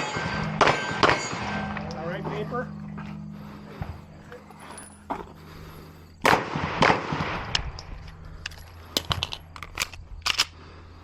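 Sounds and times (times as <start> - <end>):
pistol shots: 0.0 - 1.9, 6.2 - 7.6.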